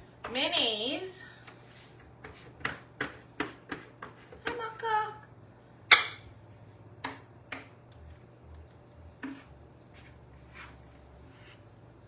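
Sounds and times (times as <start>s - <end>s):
kitchen clicks and taps: 2.0s - 4.6s, 5.9s - 6.3s, 7.0s - 8.0s
low steady hum: 4.5s - 12.0s.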